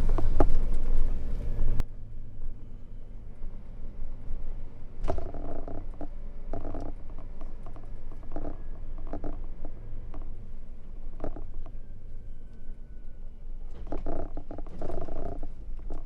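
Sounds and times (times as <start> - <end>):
low rumble: 0.0 - 16.0
clicks and rasping noises: 5.0 - 11.8, 13.6 - 16.0.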